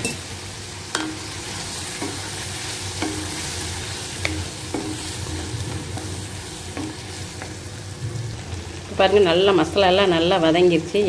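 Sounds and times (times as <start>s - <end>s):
sauce sizzling in a pan: 0.0s - 11.0s
spatula knocking against pan: 4.2s - 7.6s.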